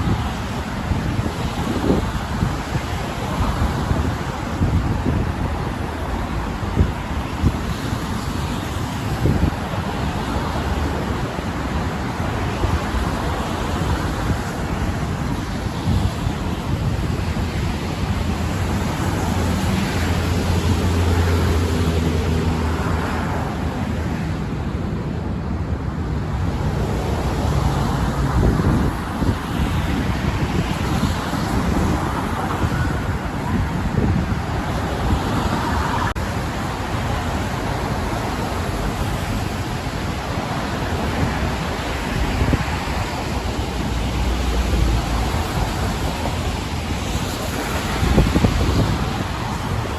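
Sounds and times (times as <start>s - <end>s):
road traffic: 0.0s - 49.9s
wind on microphone: 0.0s - 49.9s
passing vehicle hum: 18.0s - 25.3s.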